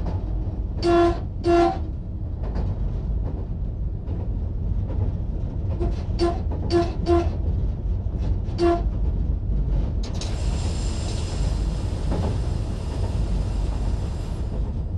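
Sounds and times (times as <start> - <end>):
train rumbling along track: 0.0 - 14.9.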